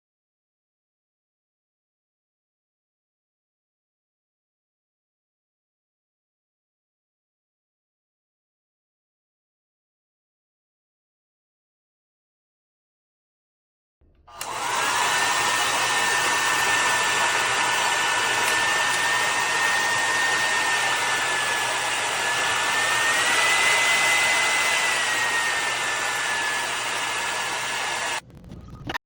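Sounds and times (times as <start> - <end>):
hair dryer motor whine: 14.3 - 28.2.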